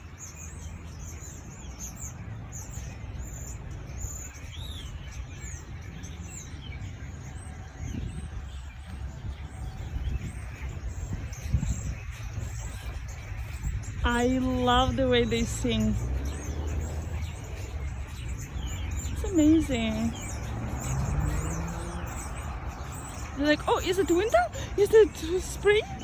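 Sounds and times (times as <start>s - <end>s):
songbirds singing and chirping: 0.0s - 26.0s.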